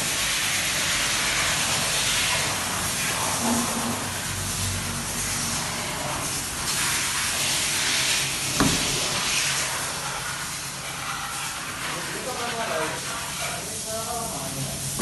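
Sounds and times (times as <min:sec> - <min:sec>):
water jet spraying onto car: 0:00.0 - 0:15.0
sharp knock: 0:08.6 - 0:09.0.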